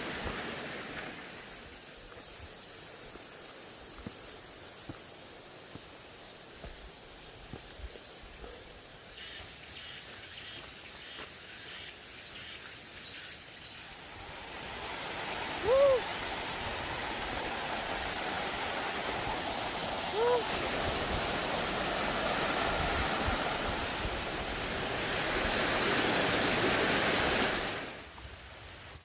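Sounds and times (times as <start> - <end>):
stream rushing over rocks: 0.0 - 1.6, 14.0 - 29.0.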